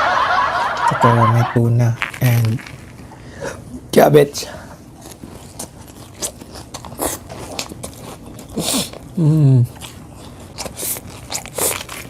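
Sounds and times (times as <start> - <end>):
person chewing crunchy food: 4.8 - 12.0
person humming: 9.2 - 9.7.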